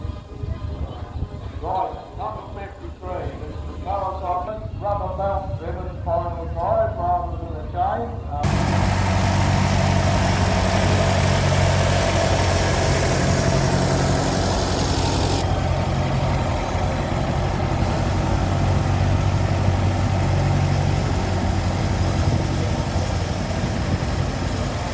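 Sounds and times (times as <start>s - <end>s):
engine humming: 8.3s - 24.9s
loud hiss: 8.4s - 15.4s.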